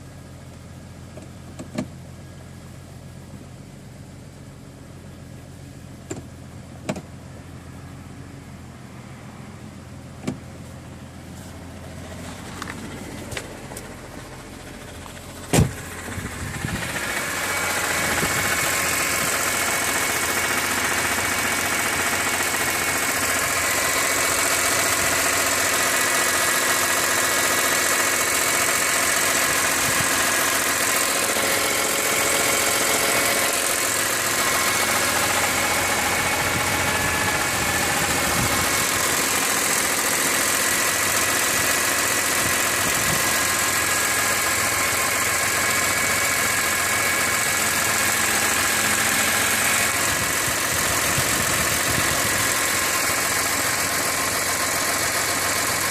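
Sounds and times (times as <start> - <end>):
car engine idling: 0.0 - 55.9
sharp knock: 15.5 - 15.8.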